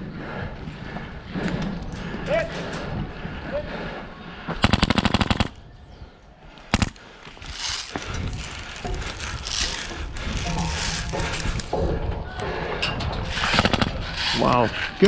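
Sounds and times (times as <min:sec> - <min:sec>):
airsoft rifle firing: 0:04.6 - 0:05.6, 0:06.7 - 0:07.0, 0:13.4 - 0:14.0.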